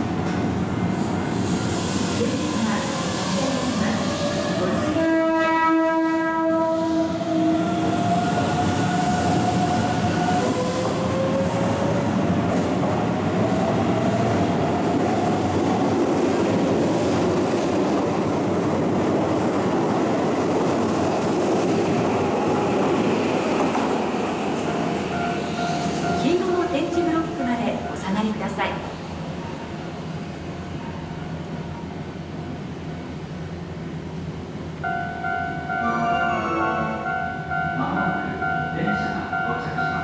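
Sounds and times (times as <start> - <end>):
train horn blast: 4.8 - 7.3, 35.7 - 37.3.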